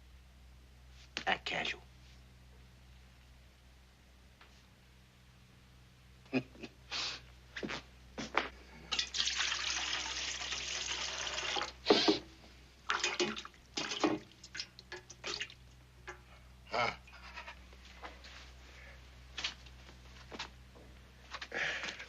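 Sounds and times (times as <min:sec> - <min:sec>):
water pouring: 0:08.9 - 0:11.8, 0:12.9 - 0:15.8.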